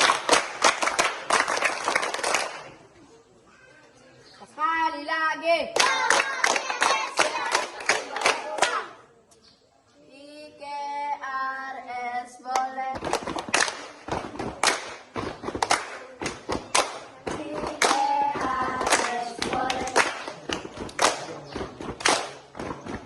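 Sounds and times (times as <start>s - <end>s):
hands clapping in rhythm: 0.0s - 2.7s, 5.8s - 8.9s, 12.5s - 23.0s
children singing: 17.2s - 20.4s.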